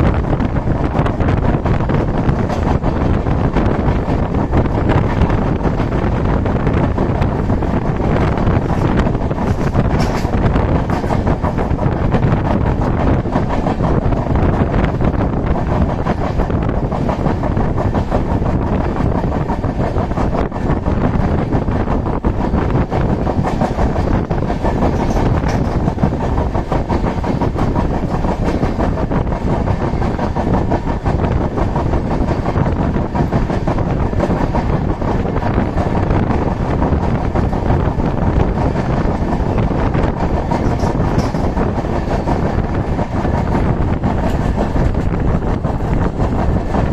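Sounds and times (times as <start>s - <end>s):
train wheels rumbling on rails: 0.0s - 46.9s.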